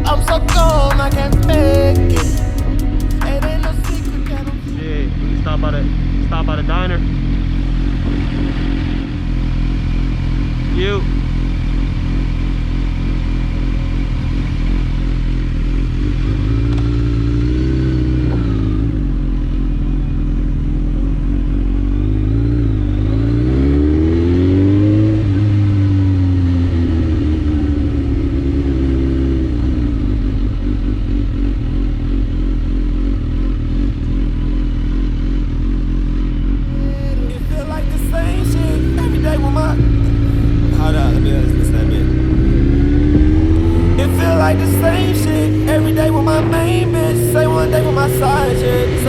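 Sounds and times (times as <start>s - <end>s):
motorcycle engine while riding: 3.6s - 49.0s.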